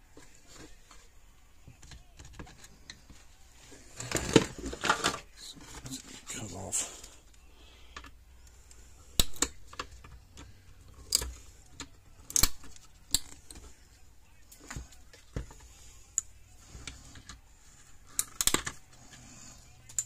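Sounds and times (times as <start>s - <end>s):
small tools clicking and clacking: 8.0s - 13.7s, 18.1s - 19.2s, 19.8s - 20.0s.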